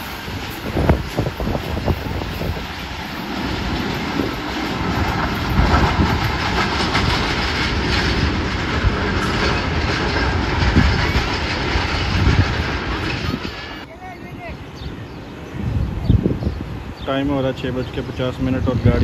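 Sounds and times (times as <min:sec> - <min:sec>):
train wheels clattering: 0:00.0 - 0:13.9.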